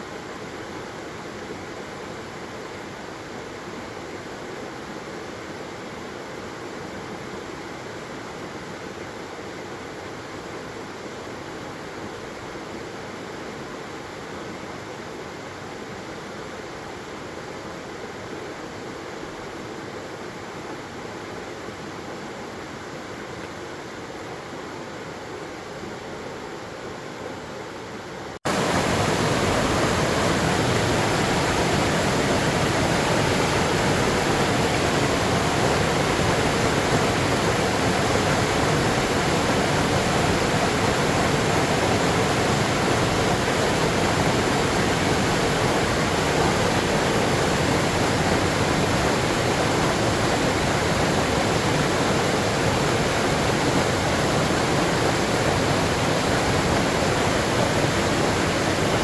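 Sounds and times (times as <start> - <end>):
waterfall rushing: 28.5 - 59.0.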